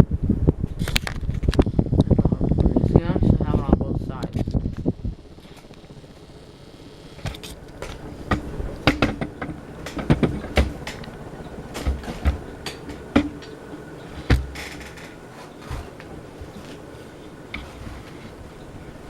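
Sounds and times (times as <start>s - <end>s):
ceiling fan running: 0.0s - 19.0s
knocks and clicks: 7.2s - 15.9s.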